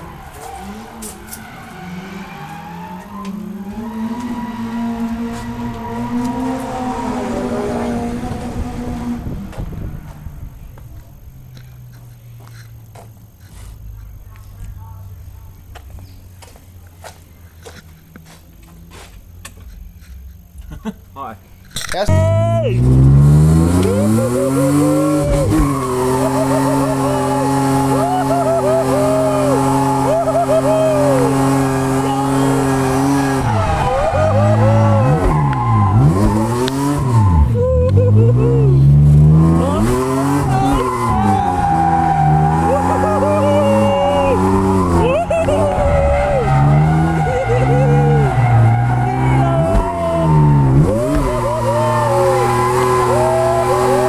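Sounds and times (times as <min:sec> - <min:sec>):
tyres squealing: 0:00.0 - 0:07.0, 0:21.6 - 0:54.0
car engine revving: 0:00.0 - 0:20.9, 0:21.6 - 0:54.0.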